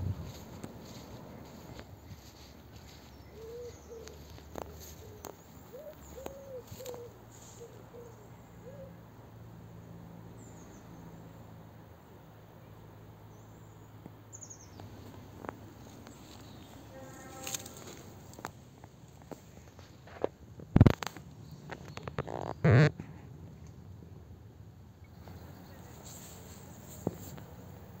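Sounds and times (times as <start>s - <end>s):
bird hooting coos: 3.3s - 9.0s.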